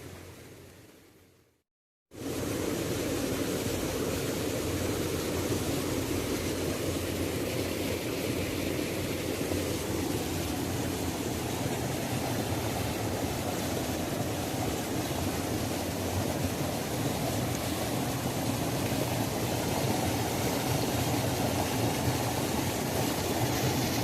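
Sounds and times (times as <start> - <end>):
waterfall rushing: 8.3 - 24.0.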